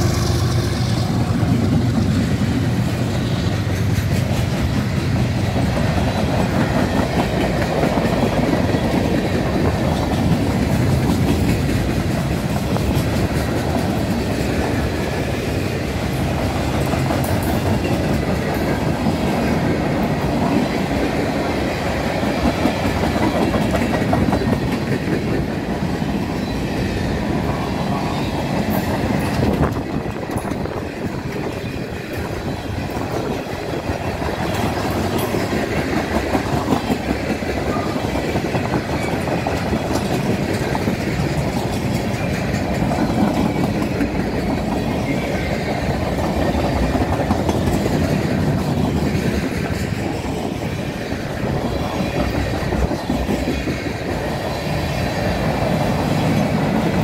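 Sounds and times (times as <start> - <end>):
diesel locomotive engine hum: 0.0 - 57.0
freight train wheels clattering: 0.0 - 57.0.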